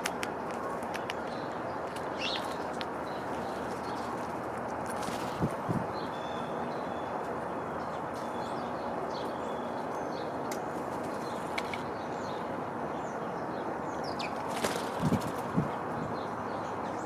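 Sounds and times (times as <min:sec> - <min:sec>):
steady rushing noise: 0:00.0 - 0:06.1, 0:14.3 - 0:16.9
small birds chirping: 0:00.1 - 0:17.0.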